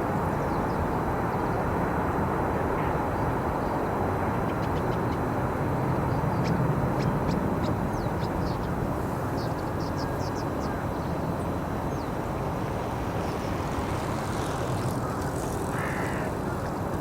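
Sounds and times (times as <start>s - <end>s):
small birds calling: 6.1s - 12.2s.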